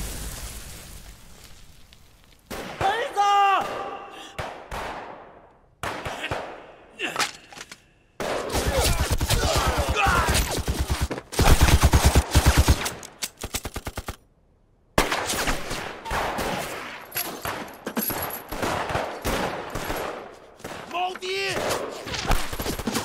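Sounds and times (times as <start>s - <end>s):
single gunshots: 2.5s - 6.8s, 15.0s - 17.6s
machine-gun fire: 8.7s - 13.0s.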